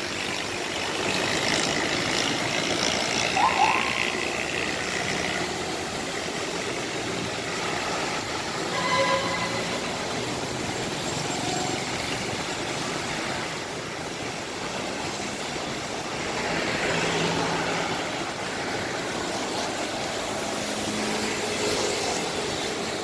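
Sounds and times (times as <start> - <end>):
bus engines passing: 0.0 - 23.0
heavy rain falling: 5.4 - 8.8, 9.6 - 12.8, 13.8 - 23.0.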